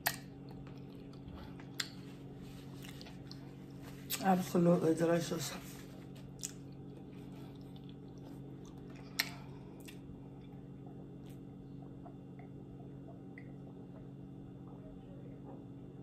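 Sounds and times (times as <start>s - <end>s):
person chewing wetly: 0.0s - 4.2s, 6.1s - 14.1s
steady low hum: 0.0s - 16.0s.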